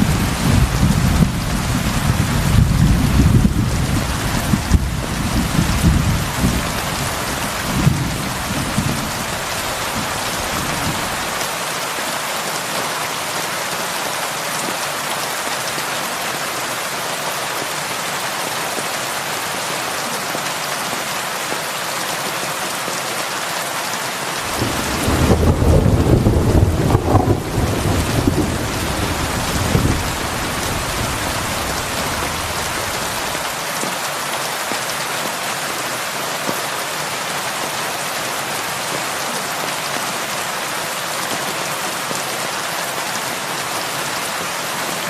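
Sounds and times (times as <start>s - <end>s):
thunder rumbling: 0.0s - 11.3s, 24.5s - 33.4s
heavy rain on a roof: 0.0s - 45.0s.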